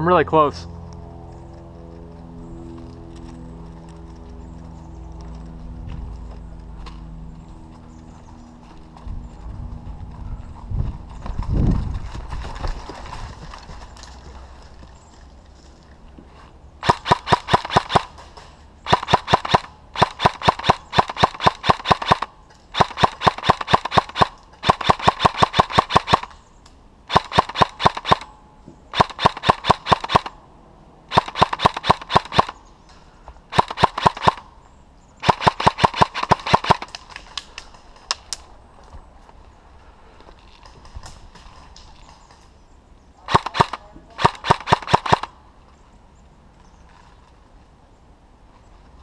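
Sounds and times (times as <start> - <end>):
airsoft gun bursts: 16.8 - 18.1, 18.8 - 26.3, 27.1 - 28.3, 28.9 - 30.3, 31.1 - 32.6, 33.5 - 34.4, 35.2 - 36.9, 43.3 - 45.3.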